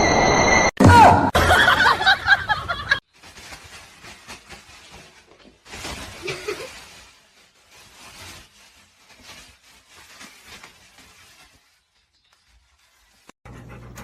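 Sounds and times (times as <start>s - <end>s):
person laughing: 6.2s - 6.7s.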